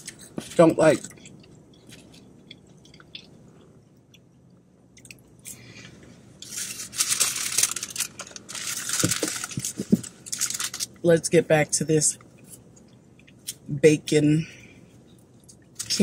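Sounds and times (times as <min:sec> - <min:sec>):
quiet chewing: 0:00.0 - 0:05.6
sandwich wrapper crinkling: 0:06.4 - 0:11.0, 0:15.5 - 0:16.0.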